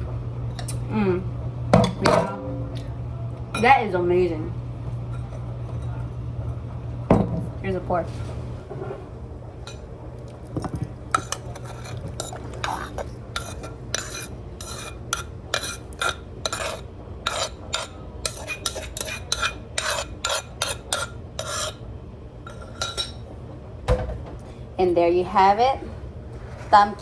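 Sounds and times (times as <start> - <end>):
steady low hum: 0.0 - 27.0
spoon clinking against bowl: 10.6 - 21.8, 22.5 - 23.2.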